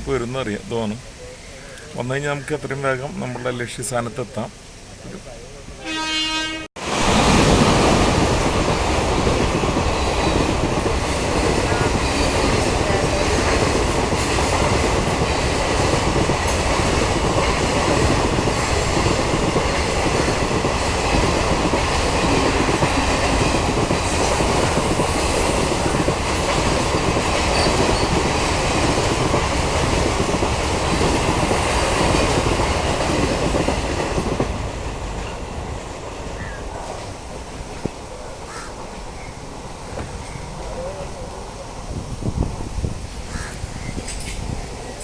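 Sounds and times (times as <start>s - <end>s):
train wheels clattering on rails: 7.0s - 38.1s, 42.1s - 45.0s.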